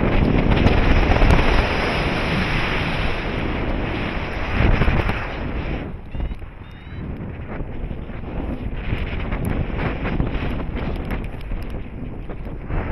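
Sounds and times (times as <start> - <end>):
strong wind buffeting microphone: 0.0 - 12.9.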